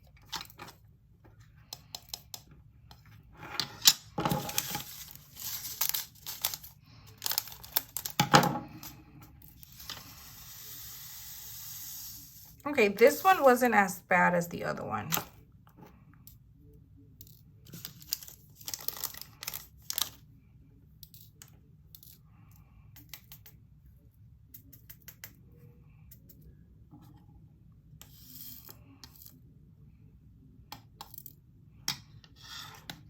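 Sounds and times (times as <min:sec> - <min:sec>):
plastic beads rattling in container: 0:04.4 - 0:08.2.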